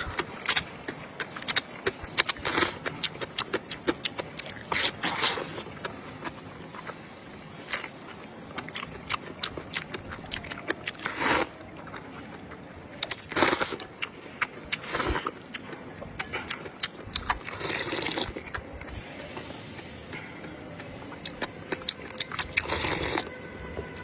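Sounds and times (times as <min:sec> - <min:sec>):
person chewing: 0:00.0 - 0:24.0
person slurping noodles: 0:10.9 - 0:11.6, 0:17.2 - 0:18.5, 0:22.2 - 0:23.3.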